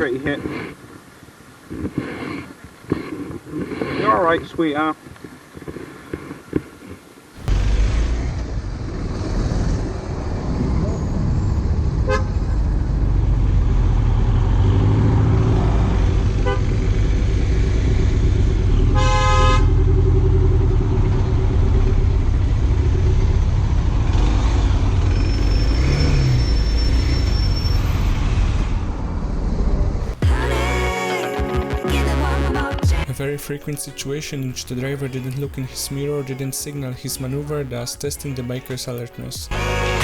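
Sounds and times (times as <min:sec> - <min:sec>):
vehicle engine and road rumble: 0:07.4 - 0:30.6
car horn toot: 0:12.0 - 0:12.5, 0:16.4 - 0:16.7, 0:18.9 - 0:19.8.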